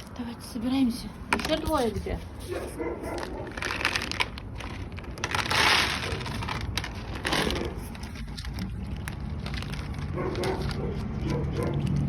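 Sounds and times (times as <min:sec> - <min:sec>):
crunching and rustling: 0:01.4 - 0:12.0.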